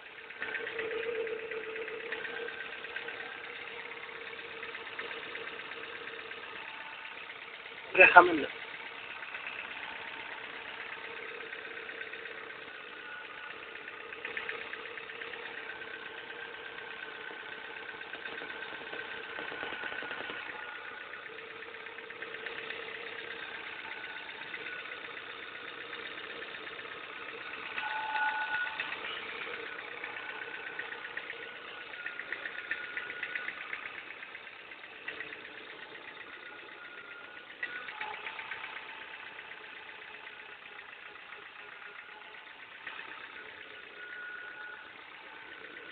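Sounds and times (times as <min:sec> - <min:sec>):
car engine idling: 0:00.0 - 0:45.9
engine ticking knock: 0:00.0 - 0:45.9.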